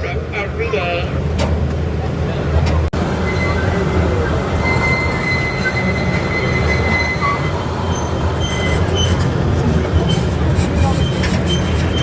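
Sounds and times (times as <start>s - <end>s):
miniature train rumbling: 0.0s - 12.0s
high squeal of train: 3.0s - 12.0s.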